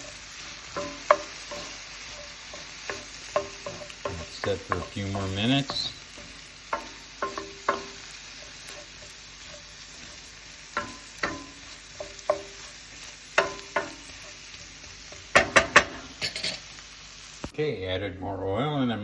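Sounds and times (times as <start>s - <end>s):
utensil scraping a pan: 0.0s - 16.8s
food sizzling in a skillet: 0.0s - 17.6s
knocks on a pan: 15.4s - 16.1s.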